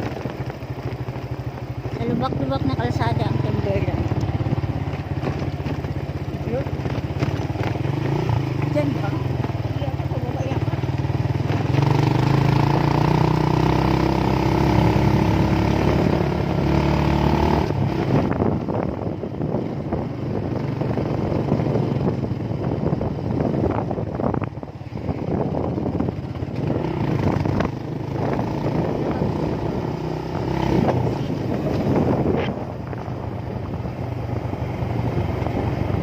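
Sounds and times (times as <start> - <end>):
motorcycle engine running: 0.0 - 36.0
wind and road noise: 0.0 - 36.0.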